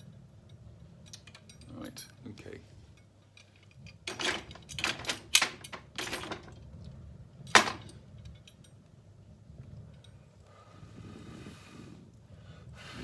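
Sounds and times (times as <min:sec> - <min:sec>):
metal clinks at fire grate: 0:00.0 - 0:08.9.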